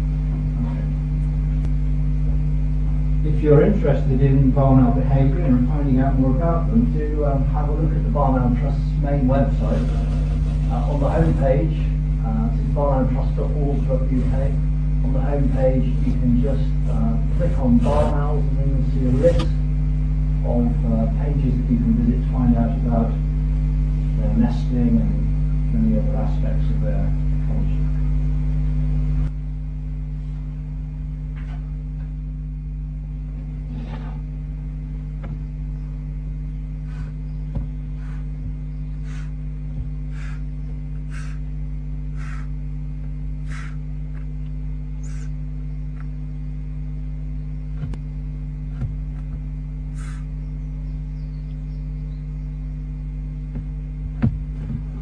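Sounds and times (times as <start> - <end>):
electrical mains hum: 0.0 - 55.0
owlets hissing snore calls: 36.8 - 42.7, 43.4 - 44.0, 45.0 - 45.4, 49.9 - 50.5.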